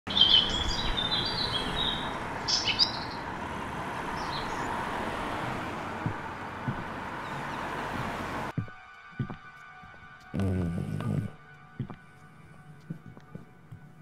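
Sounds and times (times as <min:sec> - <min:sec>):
birds chirping: 0:00.1 - 0:08.5.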